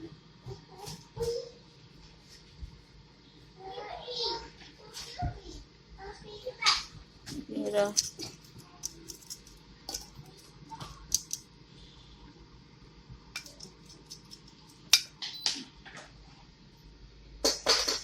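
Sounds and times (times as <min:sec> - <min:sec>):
faint steady hum: 0:00.0 - 0:18.0
utensils and dishes clinking: 0:07.9 - 0:10.2, 0:13.4 - 0:15.2.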